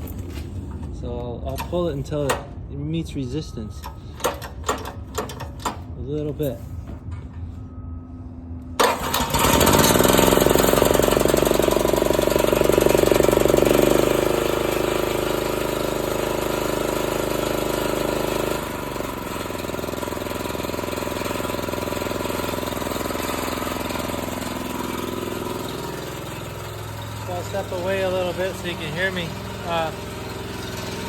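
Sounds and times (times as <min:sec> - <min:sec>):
recoil starter pull: 0:00.0 - 0:02.6, 0:03.8 - 0:05.9, 0:08.8 - 0:14.8
generator engine running: 0:00.0 - 0:07.1, 0:08.6 - 0:31.0.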